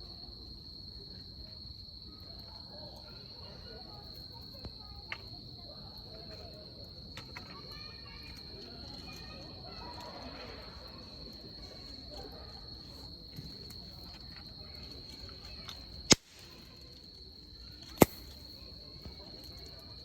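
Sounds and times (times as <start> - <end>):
insects trilling: 0.0 - 20.0
campfire burning: 13.5 - 19.8
fire popping loudly: 16.0 - 16.9, 17.8 - 18.6.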